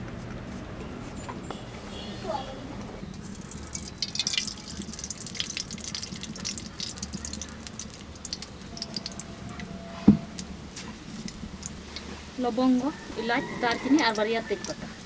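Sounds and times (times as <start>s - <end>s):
light crackling and popping: 3.1s - 12.2s.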